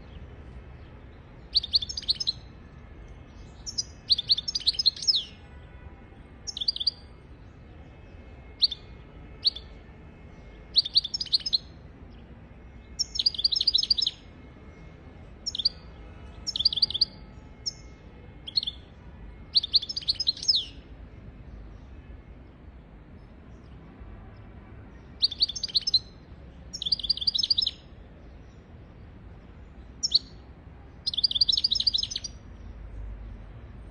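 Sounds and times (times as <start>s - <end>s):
goldfinch twittering song: 1.5s - 2.4s, 3.5s - 5.4s, 6.5s - 7.0s, 9.4s - 9.7s, 10.8s - 11.7s, 13.0s - 14.2s, 15.4s - 15.9s, 16.5s - 17.9s, 19.5s - 20.8s, 25.2s - 27.8s, 30.0s - 30.4s, 31.0s - 32.4s.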